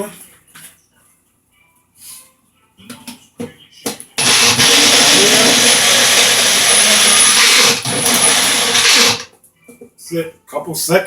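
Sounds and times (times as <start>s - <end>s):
blender motor running: 4.2s - 9.3s.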